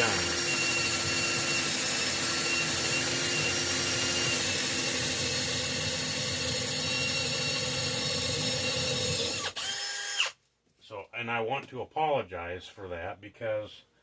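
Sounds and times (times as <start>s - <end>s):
electric power tool whining: 0.0s - 10.4s.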